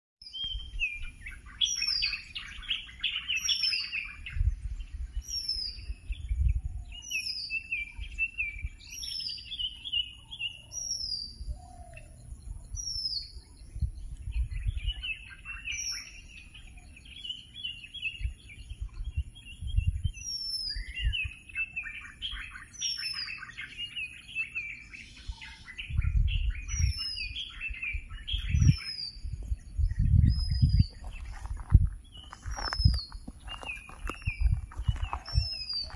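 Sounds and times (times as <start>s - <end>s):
quick bird chirping: 18.2s - 35.9s
dull low rumbles: 28.4s - 35.9s.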